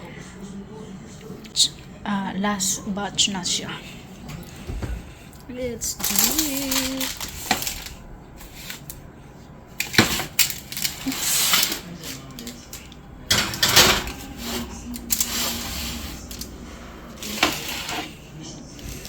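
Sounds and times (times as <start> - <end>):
utensils and dishes clattering: 4.2 - 9.1, 9.7 - 19.0
scraping or rustling: 4.3 - 9.0, 9.8 - 19.0.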